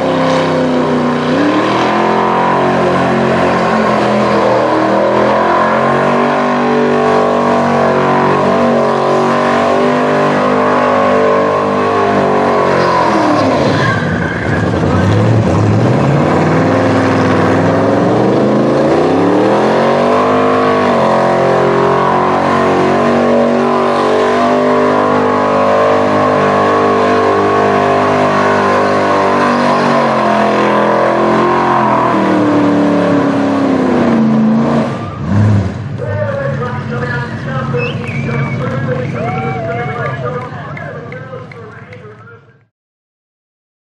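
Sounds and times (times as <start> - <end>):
car engine revving: 0.0 - 42.4
tyres squealing: 12.4 - 15.4.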